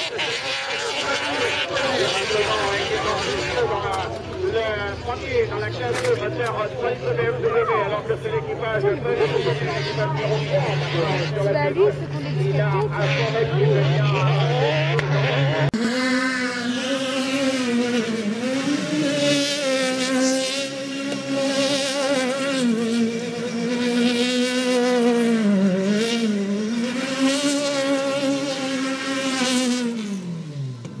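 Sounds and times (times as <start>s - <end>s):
rally car engine at high revs: 0.0s - 31.0s.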